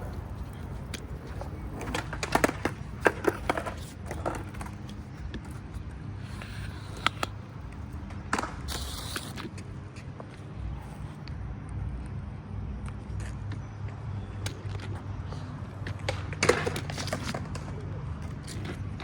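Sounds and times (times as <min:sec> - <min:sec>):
skateboard clacks: 0:00.0 - 0:10.5, 0:14.4 - 0:19.0
skateboard wheels rumbling: 0:00.0 - 0:19.0.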